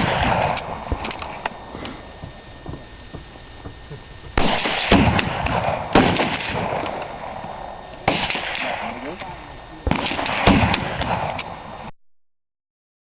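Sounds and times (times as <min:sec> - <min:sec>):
rifle shots echoing: 0:00.0 - 0:01.5, 0:04.3 - 0:09.2, 0:09.8 - 0:11.9.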